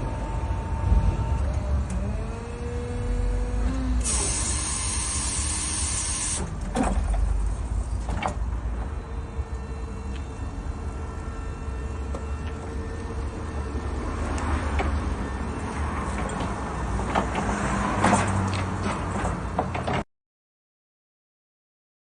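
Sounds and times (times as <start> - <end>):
electric forklift motors whining: 0.0 - 17.6
loud hiss: 4.0 - 6.4.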